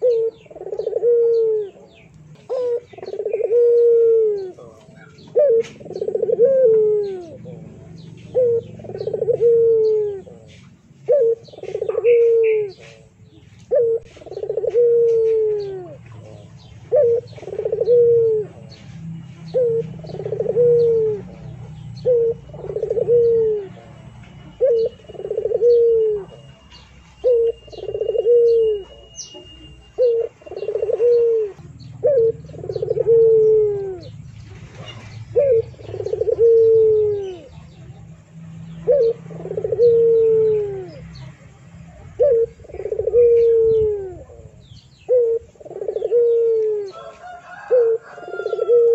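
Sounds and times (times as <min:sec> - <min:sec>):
small birds chirping: 0:00.0 - 0:48.7.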